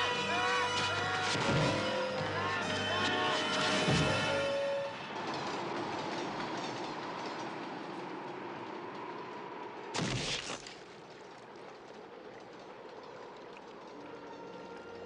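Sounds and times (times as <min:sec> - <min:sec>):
train rolling on rails: 0:00.0 - 0:10.0, 0:10.6 - 0:15.0.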